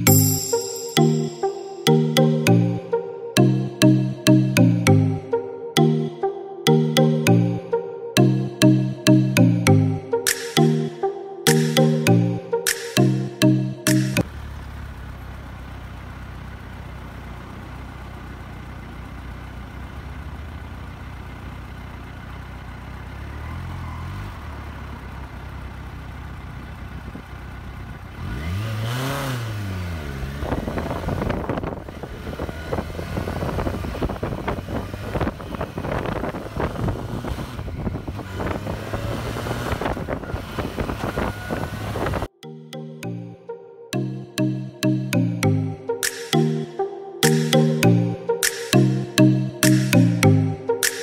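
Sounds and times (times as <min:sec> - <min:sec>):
motorcycle engine idling and revving: 0:14.2 - 0:42.3
wind buffeting microphone: 0:30.5 - 0:42.3.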